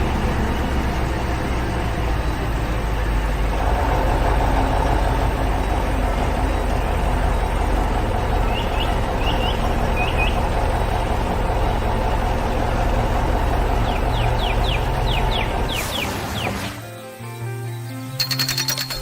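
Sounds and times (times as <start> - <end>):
heavy vehicle engine running: 0.0 - 16.9
bird chirps: 8.3 - 11.0, 13.5 - 16.9, 18.1 - 19.0.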